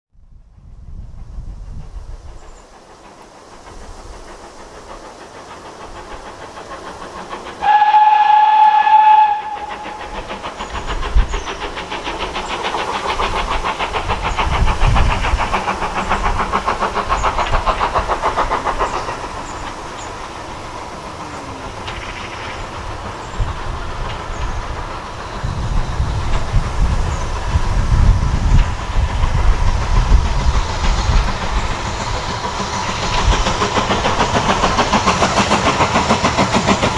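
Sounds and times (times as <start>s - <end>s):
train rumbling and clattering past: 0.2s - 36.9s
steam engine exhaust beats: 0.4s - 36.9s
steam locomotive whistle: 7.6s - 10.4s.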